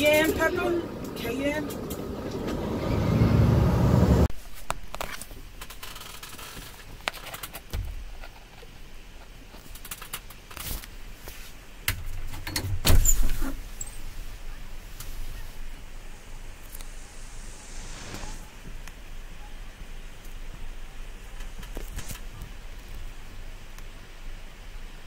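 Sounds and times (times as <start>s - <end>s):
low vehicle rumble: 0.0s - 4.3s.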